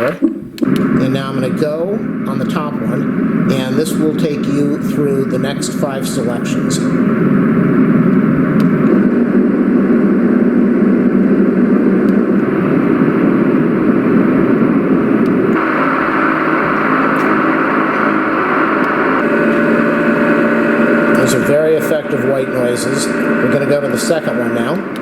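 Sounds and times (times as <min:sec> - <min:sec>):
white noise machine: 0:00.0 - 0:25.0.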